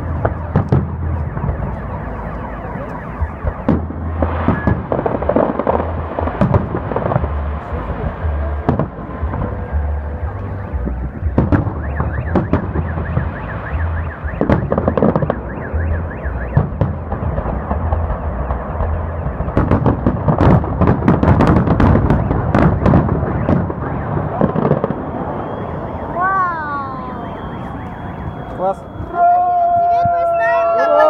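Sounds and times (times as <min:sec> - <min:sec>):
car alarm warbling: 0:00.0 - 0:05.5, 0:09.9 - 0:19.8, 0:22.1 - 0:30.9
fireworks bangs and crackling: 0:00.0 - 0:31.0.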